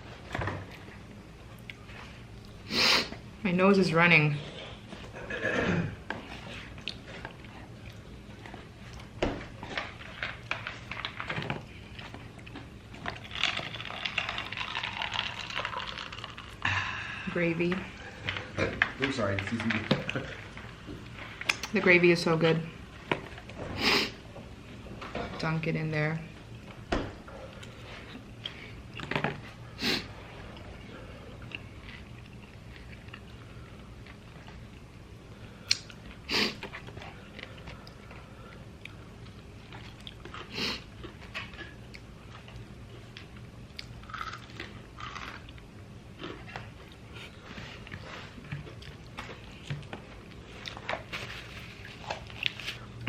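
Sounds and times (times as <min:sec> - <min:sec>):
chewing fried chicken: 0:06.2 - 0:17.1, 0:30.5 - 0:53.0
crispy fried chicken crunching: 0:12.1 - 0:16.7, 0:43.8 - 0:46.5.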